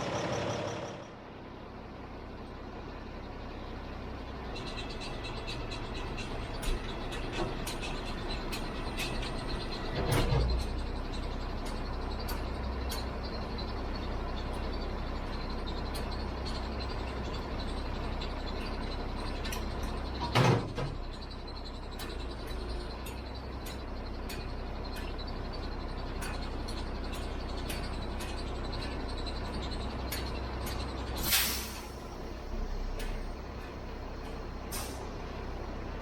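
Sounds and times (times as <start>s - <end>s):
truck diesel engine idling: 0.0s - 20.3s, 20.9s - 36.0s
compressed air hiss: 31.2s - 31.9s.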